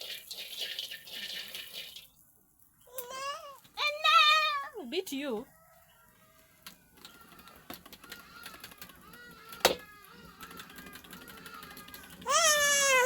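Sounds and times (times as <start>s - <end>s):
young child crying: 2.9s - 4.8s, 9.2s - 13.0s.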